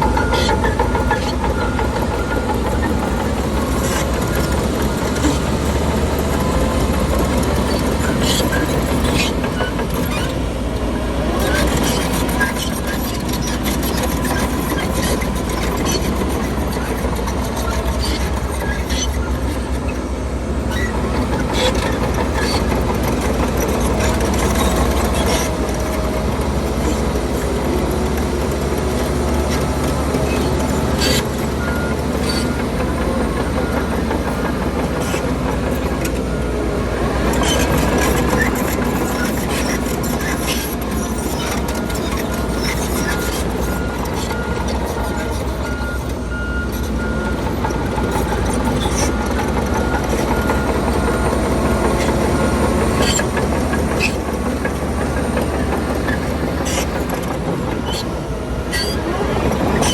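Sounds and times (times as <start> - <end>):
heavy machinery diesel engines: 0.0 - 59.9
reversing alarm beeping: 41.2 - 54.4.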